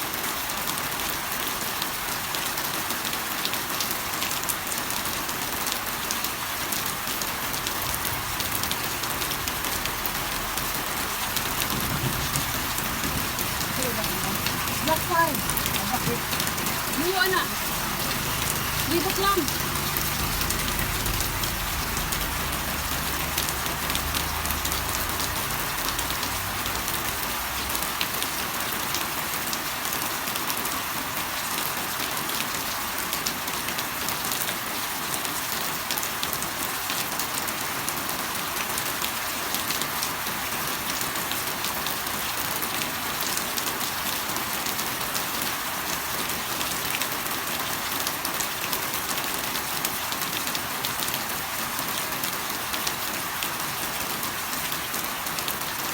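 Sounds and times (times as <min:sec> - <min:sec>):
steady rain: 0:00.0 - 0:55.9
low rumble: 0:06.9 - 0:29.0.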